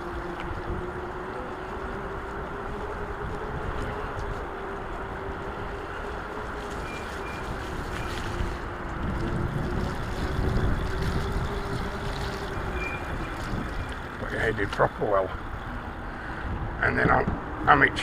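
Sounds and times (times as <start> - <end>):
electric motor whine: 0.0 - 14.4
wind buffeting microphone: 0.0 - 18.0.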